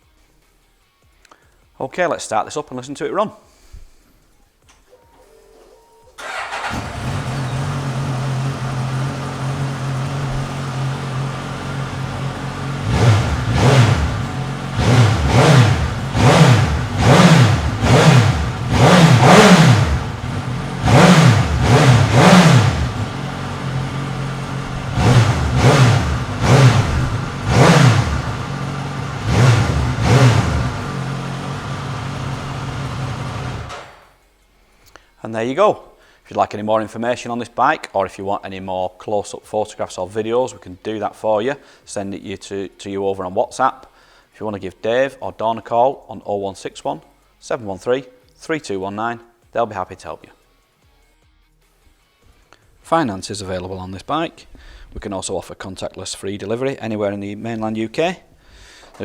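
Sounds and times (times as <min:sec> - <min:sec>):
motorcycle engine revving: 0:06.2 - 0:34.1
motorcycle engine starting and idling: 0:06.2 - 0:34.2.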